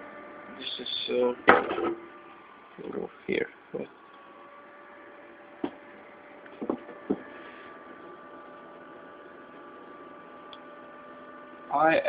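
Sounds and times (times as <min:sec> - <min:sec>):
electrical hum with cooling fans: 0:00.0 - 0:12.0
short knocks: 0:06.6 - 0:07.3.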